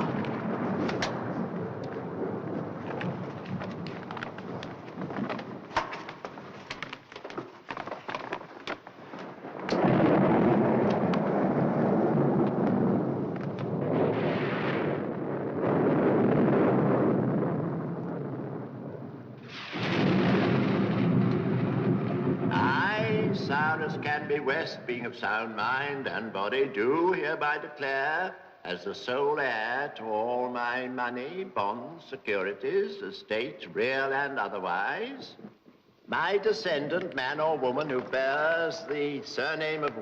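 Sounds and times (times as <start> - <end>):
heavy crash of thunder: 0.0 - 5.8, 9.2 - 25.0
rain with sharp crackle: 0.0 - 24.5.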